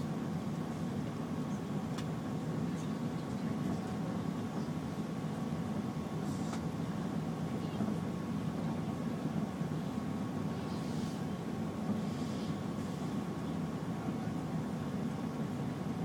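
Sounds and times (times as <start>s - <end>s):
airliner cabin engine rumble: 0.0s - 16.0s.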